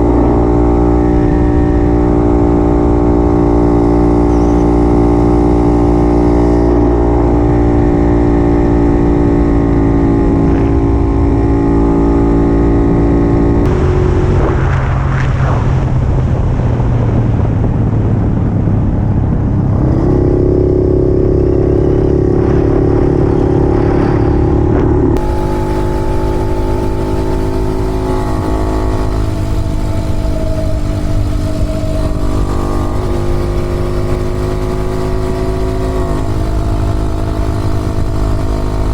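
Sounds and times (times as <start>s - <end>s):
road and wind noise: 0.0s - 38.9s
motorcycle two-stroke engine running: 25.2s - 38.9s.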